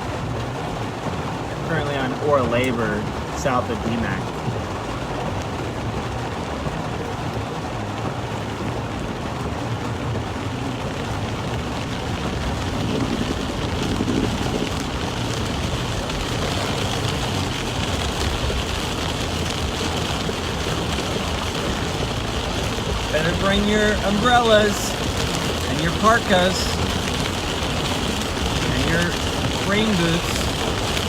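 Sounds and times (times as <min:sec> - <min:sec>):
heavy rain on a car: 0:00.0 - 0:31.0
tyre hiss on wet road: 0:12.3 - 0:31.0.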